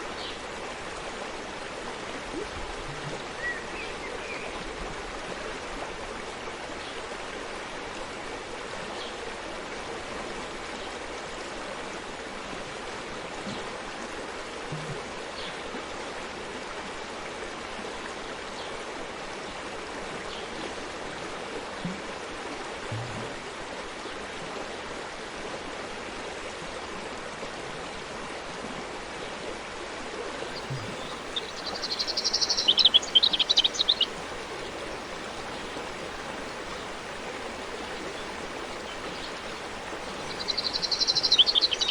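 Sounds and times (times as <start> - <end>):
stream running water: 0.0 - 41.9
bird chirping: 30.5 - 41.9.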